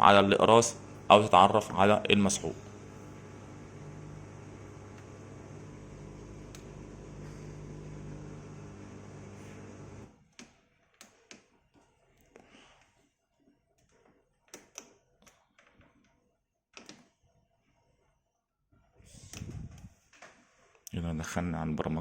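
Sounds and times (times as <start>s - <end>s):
dishwasher pump humming: 0.0s - 1.6s, 2.2s - 10.1s.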